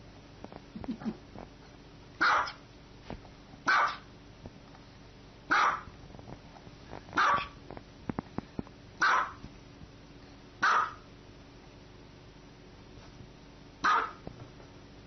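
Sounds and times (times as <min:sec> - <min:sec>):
dog barking: 0:02.2 - 0:02.6, 0:03.7 - 0:04.1, 0:05.5 - 0:05.9, 0:07.2 - 0:07.6, 0:09.0 - 0:09.4, 0:10.6 - 0:11.1, 0:13.8 - 0:14.2.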